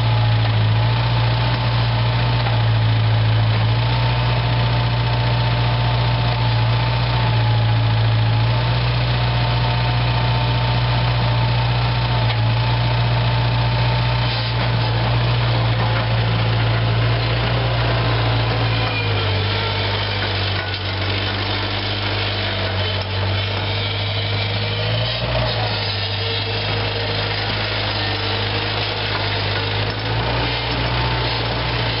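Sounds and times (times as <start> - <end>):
diesel engine idling: 9.2 - 32.0.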